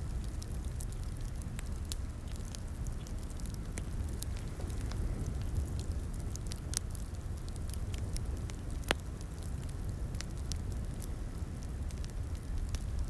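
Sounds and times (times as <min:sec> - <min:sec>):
fire pops and snaps: 0:00.0 - 0:13.0
low rumble of flame: 0:00.0 - 0:13.0
wood fire crackling: 0:00.0 - 0:13.0.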